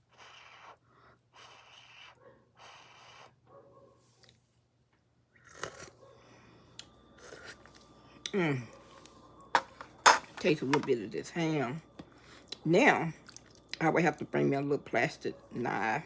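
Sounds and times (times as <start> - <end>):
chewing food: 5.3 - 9.5, 13.2 - 13.8.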